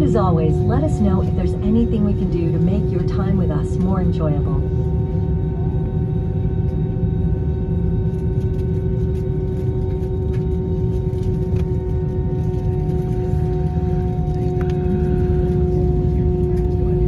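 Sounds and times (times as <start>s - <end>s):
jet engines idling: 0.0s - 7.4s.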